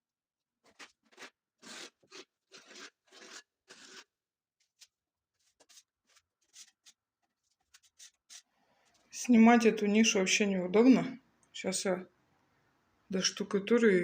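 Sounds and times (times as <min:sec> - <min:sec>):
spatula scraping wet plaster: 0:00.6 - 0:08.6.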